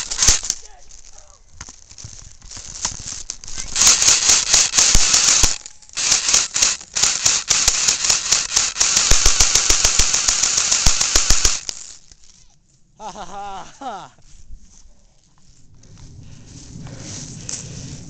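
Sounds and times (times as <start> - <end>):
airsoft guns firing: 0.0 - 0.8, 3.5 - 12.0.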